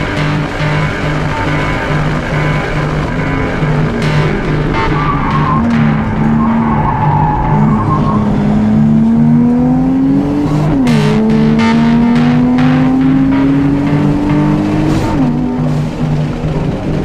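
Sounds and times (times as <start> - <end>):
car engine accelerating: 0.0 - 17.0
music with steady beat: 0.0 - 17.0.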